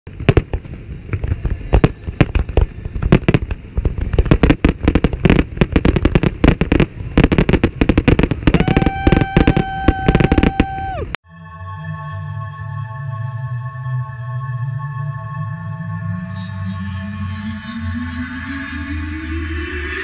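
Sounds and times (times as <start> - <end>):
fireworks bursting bangs: 0.1 - 11.0
steady high tone: 11.2 - 20.0.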